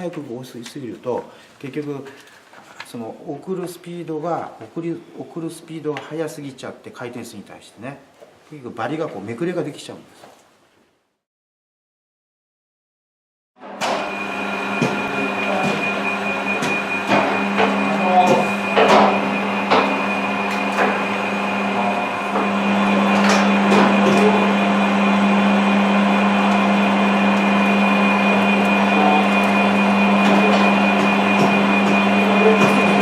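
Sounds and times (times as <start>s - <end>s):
metal lathe motor whining: 13.6s - 33.0s.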